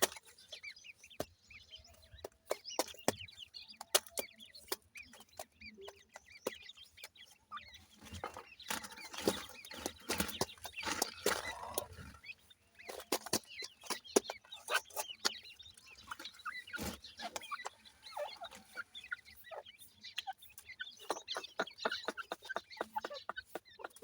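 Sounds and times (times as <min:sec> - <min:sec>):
chicks peeping: 0:00.0 - 0:24.0.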